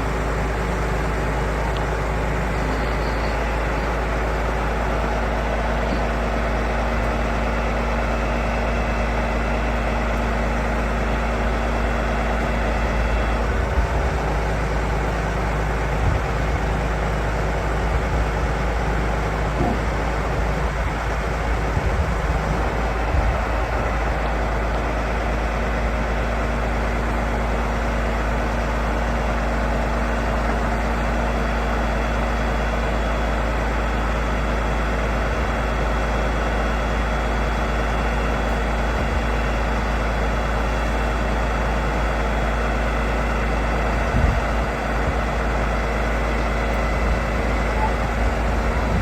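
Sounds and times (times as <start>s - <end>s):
faint steady whine: 0.0s - 28.0s
heavy truck engine rumbling: 0.0s - 49.0s.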